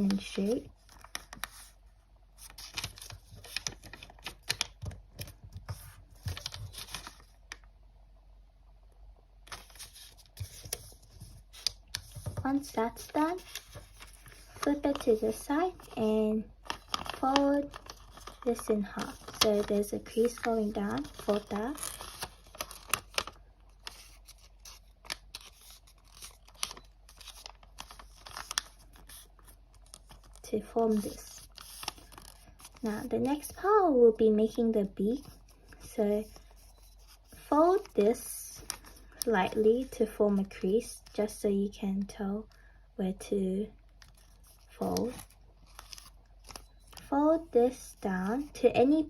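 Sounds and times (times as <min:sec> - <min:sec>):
paper being folded and creased: 0:00.0 - 0:07.7, 0:09.4 - 0:33.8, 0:35.1 - 0:41.2, 0:43.9 - 0:48.6.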